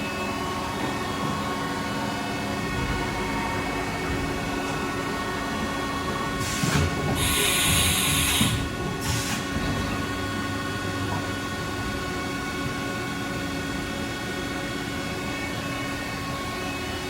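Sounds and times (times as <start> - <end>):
milling machine whine: 0.0 - 17.0.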